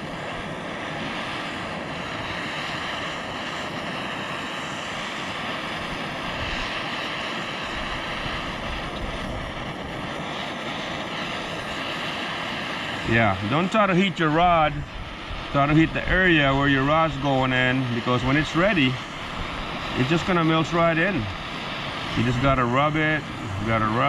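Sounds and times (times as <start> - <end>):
gas torch flame burning: 0.0 - 24.0
wind buffeting microphone: 7.6 - 11.9, 12.9 - 24.0.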